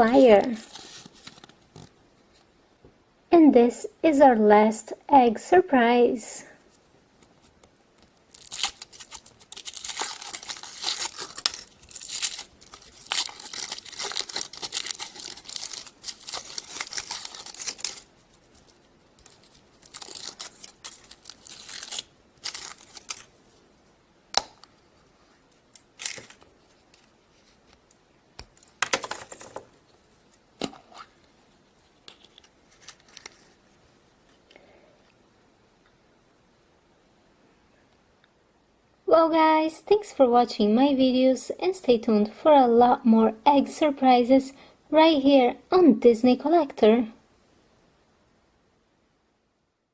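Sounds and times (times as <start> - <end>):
rustles and clicks handling egg: 0.0 - 2.5, 6.6 - 23.7, 24.6 - 34.5
wrapper tearing and crinkling: 0.4 - 1.5, 8.1 - 23.4, 25.6 - 27.1, 32.1 - 33.6.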